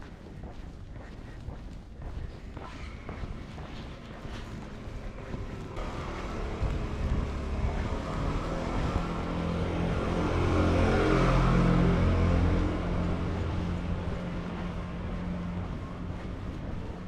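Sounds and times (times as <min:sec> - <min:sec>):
vehicle driving past: 0:04.7 - 0:17.0.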